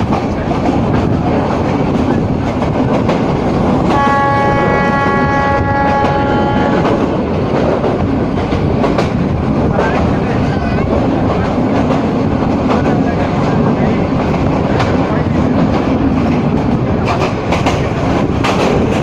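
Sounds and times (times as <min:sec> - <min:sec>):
train rumbling on track: 0:00.0 - 0:19.0
train horn blast: 0:03.9 - 0:07.0.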